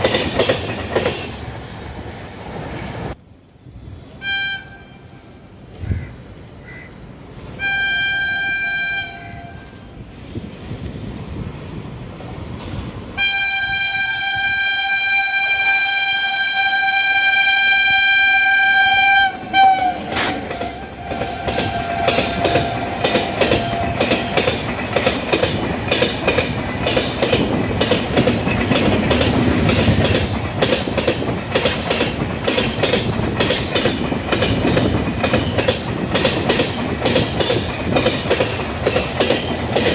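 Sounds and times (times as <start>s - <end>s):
train wheels clicking over rail joints: 0.0s - 2.2s, 19.5s - 39.9s
train horn blasts: 4.2s - 5.4s, 7.6s - 10.0s, 13.2s - 24.4s.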